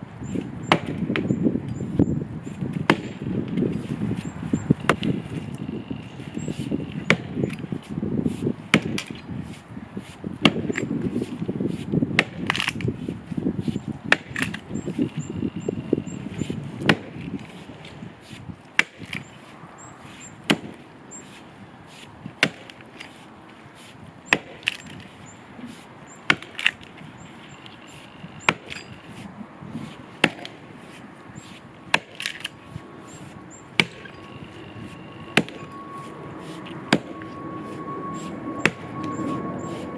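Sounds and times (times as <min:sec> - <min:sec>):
axe chopping into tree trunk: 0:00.7 - 0:01.3, 0:02.8 - 0:03.3, 0:04.9 - 0:05.2, 0:07.0 - 0:07.6, 0:08.7 - 0:09.2, 0:10.4 - 0:10.9, 0:12.2 - 0:12.8, 0:14.0 - 0:14.6, 0:16.8 - 0:17.2, 0:18.8 - 0:19.2, 0:20.4 - 0:20.8, 0:22.4 - 0:22.8, 0:24.3 - 0:25.0, 0:26.2 - 0:26.8, 0:28.4 - 0:28.9, 0:30.2 - 0:30.6, 0:31.9 - 0:32.5, 0:33.8 - 0:34.2, 0:35.4 - 0:35.7, 0:36.9 - 0:37.1.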